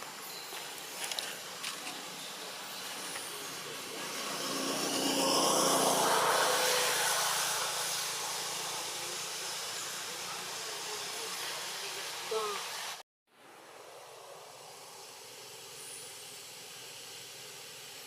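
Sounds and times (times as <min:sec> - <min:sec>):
passing motor vehicle: 0:02.9 - 0:12.2.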